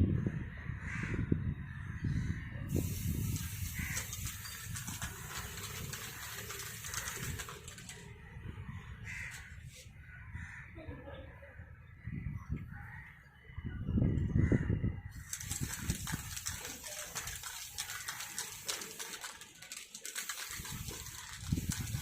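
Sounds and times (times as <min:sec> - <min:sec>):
spray paint can hissing: 0:02.7 - 0:08.1, 0:15.2 - 0:22.0
crows cawing: 0:03.7 - 0:04.2, 0:09.0 - 0:10.7.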